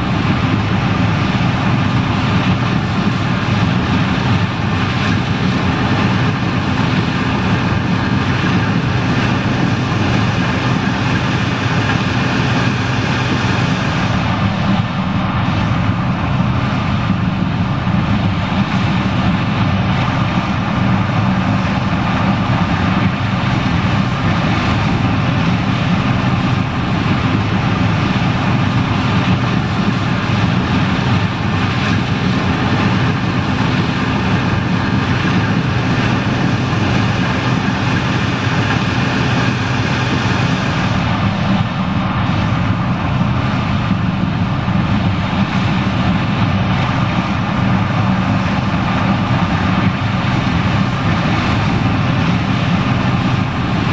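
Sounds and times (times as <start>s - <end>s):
machine rushing noise: 0.0s - 15.9s, 20.8s - 43.0s
combine harvester diesel engine drone: 0.0s - 53.9s.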